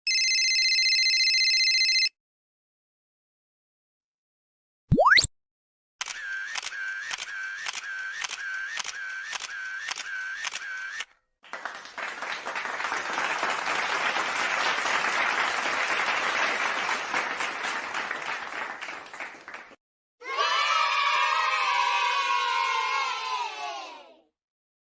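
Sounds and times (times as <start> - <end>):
camera shutter clicks: 6.0 - 11.0
applause: 11.4 - 19.8.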